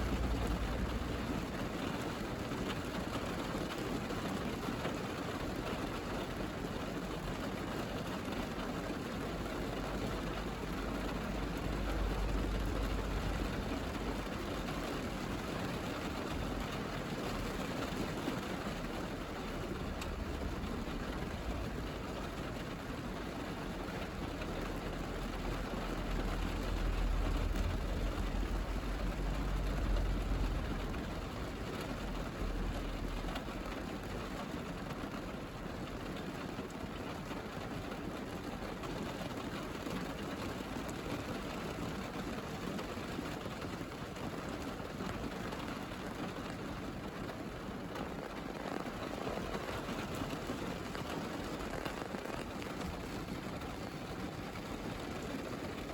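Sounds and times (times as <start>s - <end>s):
rain on car roof: 0.0s - 55.9s.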